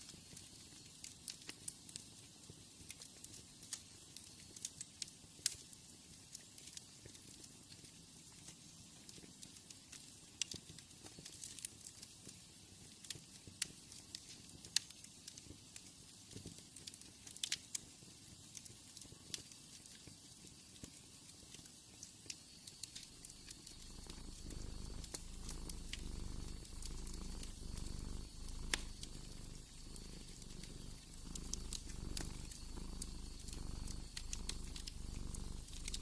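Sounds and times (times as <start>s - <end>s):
wood fire crackling and popping: 0.0s - 36.0s
cat purring: 22.7s - 36.0s.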